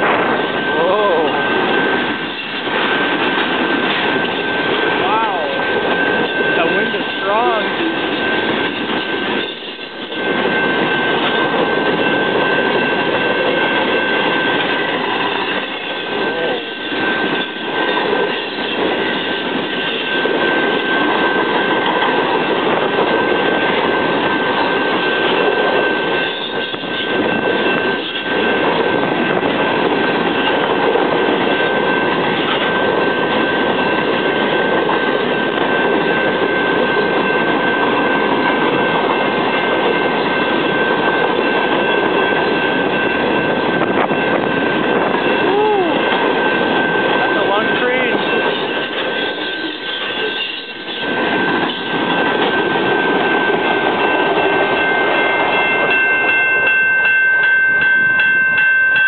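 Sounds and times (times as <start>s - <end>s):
crossing signal bell ringing: 0.0s - 59.0s
freight train wheels clattering: 0.0s - 59.0s.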